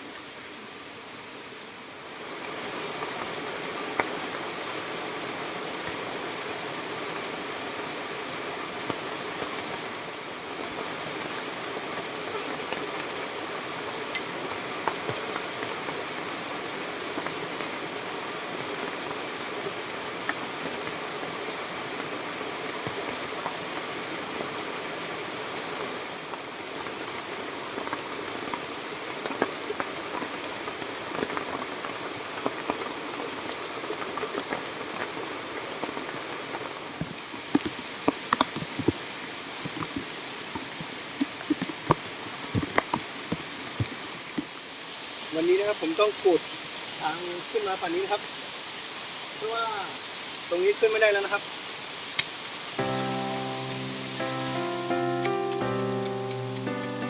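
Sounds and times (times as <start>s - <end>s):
rushing water: 0.0s - 57.0s
light taps and patters: 37.0s - 44.5s.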